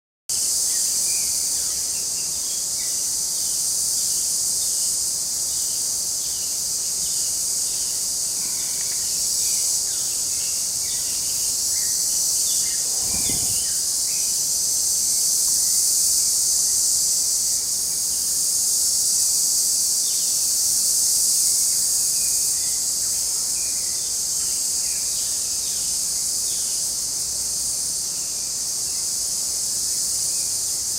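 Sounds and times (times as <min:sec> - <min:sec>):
insects chirping: 0:00.3 - 0:30.9
faint bird chirps: 0:07.9 - 0:14.3.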